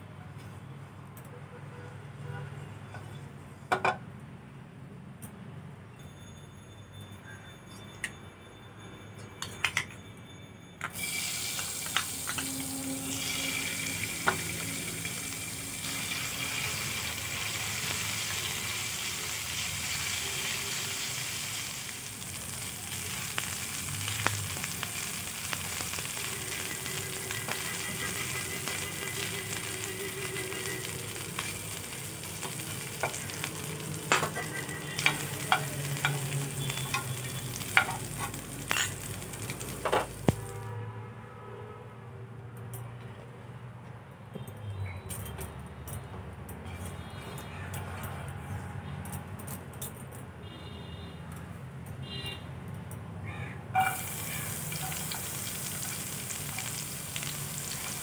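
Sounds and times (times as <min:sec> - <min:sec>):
chicken sizzling in oil: 0:11.0 - 0:40.6, 0:53.8 - 0:58.0
utensils clinking against pan: 0:23.9 - 0:40.3, 0:53.8 - 0:58.0.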